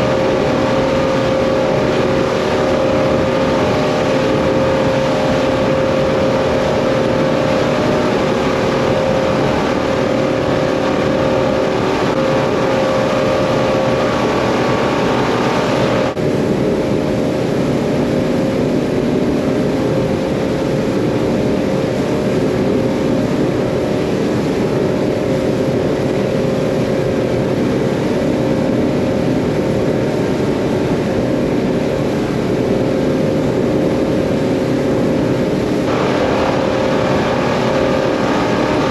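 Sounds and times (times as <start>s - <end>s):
outboard engines running: 0.0s - 38.9s.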